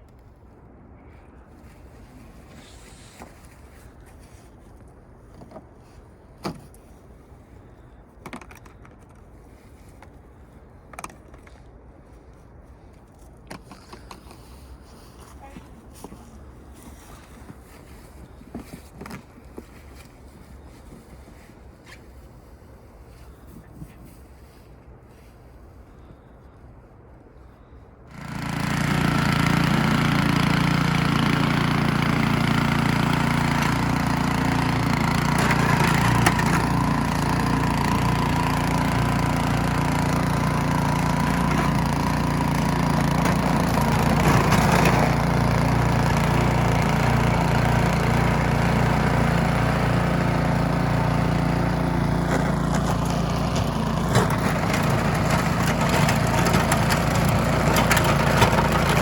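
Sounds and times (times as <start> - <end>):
snowblower engine drone: 27.6 - 59.0.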